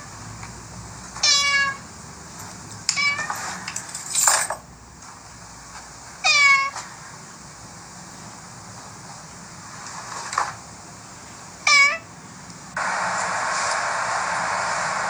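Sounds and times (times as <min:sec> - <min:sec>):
cat meowing: 0:01.2 - 0:01.8, 0:02.9 - 0:03.4, 0:06.2 - 0:06.8, 0:11.6 - 0:12.1
brief noisy burst: 0:12.8 - 0:15.0.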